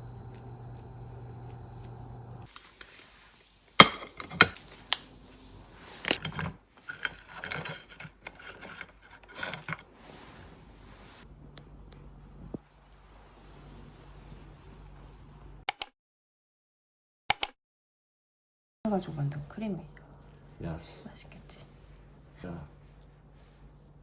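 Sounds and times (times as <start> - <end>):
low hum: 0.0 - 2.5
utensils clinking against dishes: 3.8 - 4.6, 6.0 - 9.8.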